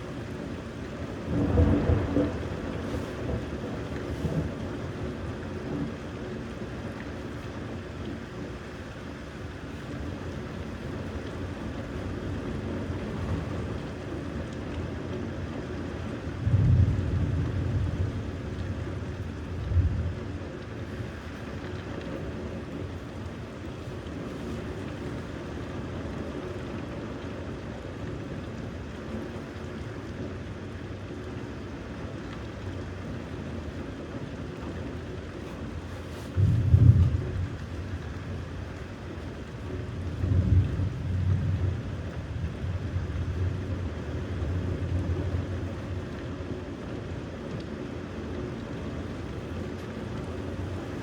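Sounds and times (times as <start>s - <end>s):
steady rain: 0.0s - 51.0s
deep rumbles of thunder: 1.2s - 6.0s, 16.4s - 20.4s, 36.3s - 38.8s, 39.7s - 46.0s.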